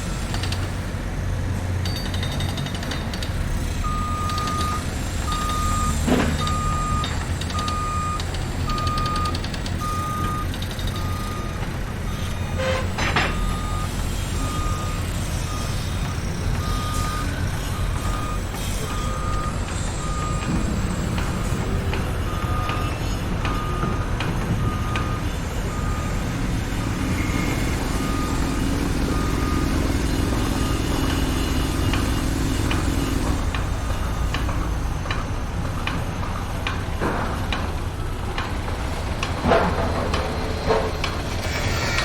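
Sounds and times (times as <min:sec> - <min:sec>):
heavy vehicle engine rumble: 0:00.0 - 0:42.0
reversing alarm beeping: 0:03.8 - 0:35.2
knocks and clanks: 0:12.6 - 0:13.9, 0:16.0 - 0:25.8, 0:30.2 - 0:42.0.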